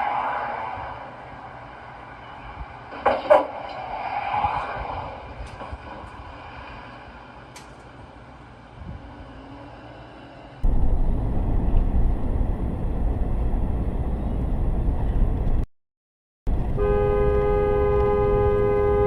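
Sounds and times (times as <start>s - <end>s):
road vehicle rumble: 0.0s - 15.7s, 16.5s - 19.0s
car horn two-note blast: 16.8s - 19.0s.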